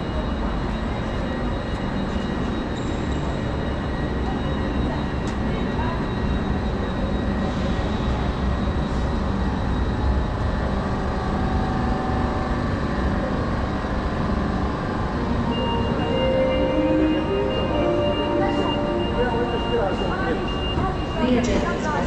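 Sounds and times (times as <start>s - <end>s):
standing trains rumbling: 0.0s - 22.0s
steady tones: 15.3s - 22.0s.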